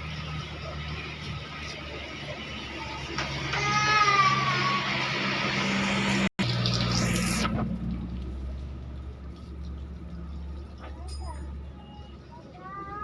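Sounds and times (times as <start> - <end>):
hose spraying water: 0.0 - 11.2.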